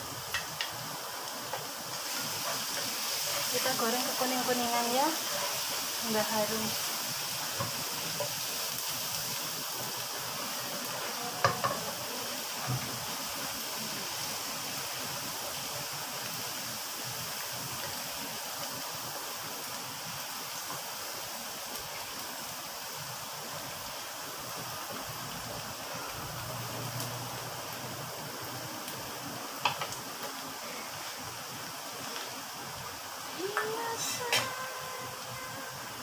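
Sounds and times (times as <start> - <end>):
garlic sizzling in oil: 0.0 - 36.0
wooden spatula stirring: 2.0 - 6.0.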